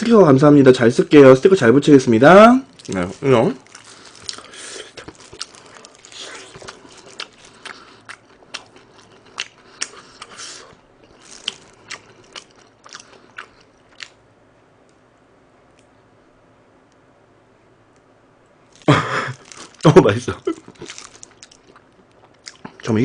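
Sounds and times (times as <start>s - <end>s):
crispy chicken crunching: 2.7s - 14.2s, 18.7s - 23.0s
wet chewing: 2.7s - 14.2s, 18.8s - 22.9s.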